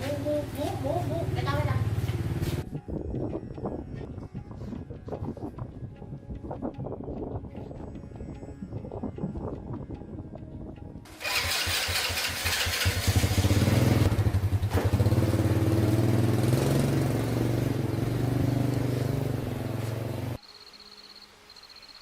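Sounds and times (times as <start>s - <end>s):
small motorbike engine starting: 11.1s - 17.6s.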